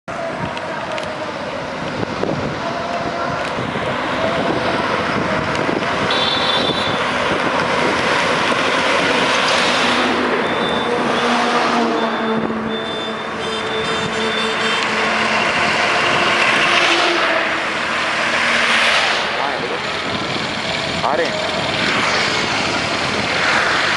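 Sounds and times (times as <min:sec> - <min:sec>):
steady traffic noise: 0:00.1 - 0:23.9
motorcycles passing at speed: 0:15.3 - 0:23.9.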